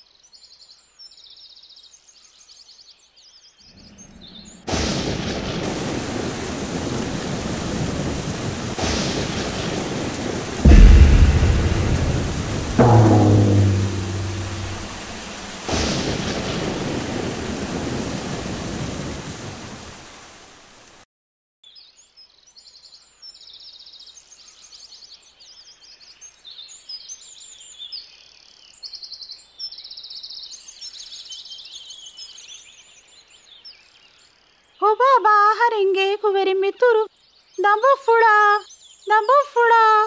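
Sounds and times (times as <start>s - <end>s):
thunder: 4.7s - 19.7s
heavy rain: 4.7s - 21.0s.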